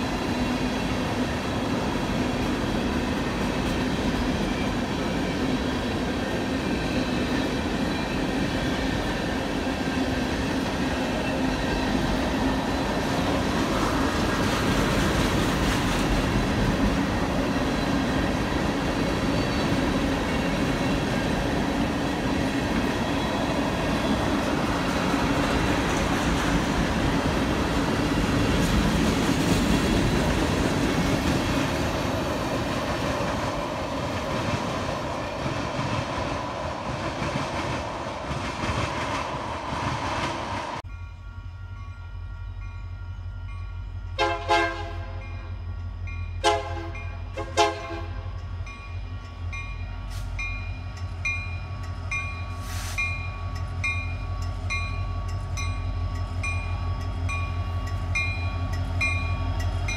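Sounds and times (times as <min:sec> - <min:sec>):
train wheels clattering on rails: 0:00.0 - 0:40.9
diesel locomotive humming: 0:00.0 - 0:59.9
locomotive air horn blasts: 0:44.2 - 0:45.2, 0:46.4 - 0:48.3.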